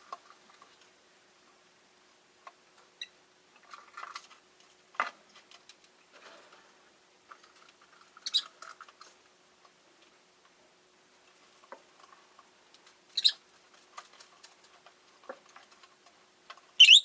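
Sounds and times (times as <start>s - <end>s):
birds scratching and clicking: 0.0s - 1.0s, 3.6s - 10.2s, 11.1s - 16.8s
lovebirds chirping: 8.2s - 8.5s, 13.1s - 13.4s, 16.8s - 17.0s.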